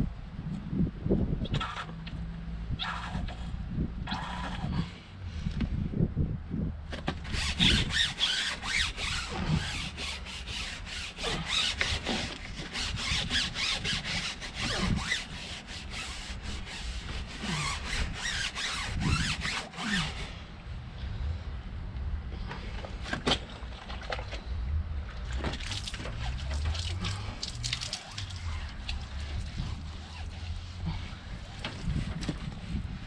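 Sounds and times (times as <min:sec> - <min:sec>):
mitt scrubbing rubber tyre: 0:02.8 - 0:05.0, 0:07.0 - 0:20.6, 0:22.5 - 0:33.0.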